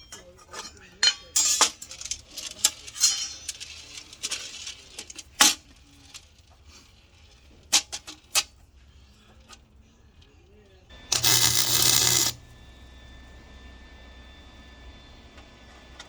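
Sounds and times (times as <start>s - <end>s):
metal rattling and scraping: 11.1s - 12.4s.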